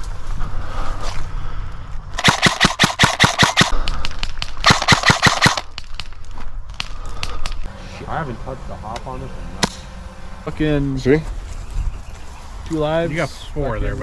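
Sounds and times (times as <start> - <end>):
airsoft gun rapid firing: 2.2 - 3.7, 4.6 - 5.7.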